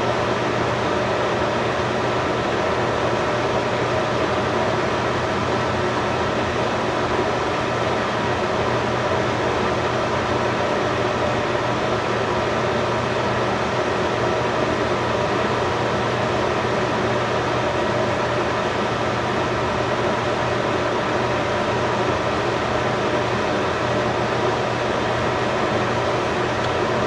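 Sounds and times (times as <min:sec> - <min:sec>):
fan whirring hum: 0:00.0 - 0:27.0.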